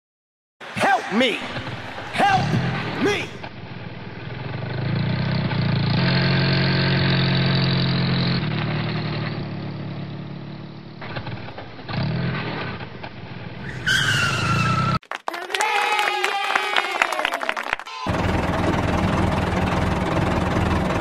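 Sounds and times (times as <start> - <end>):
car engine revving: 1.7 - 13.6.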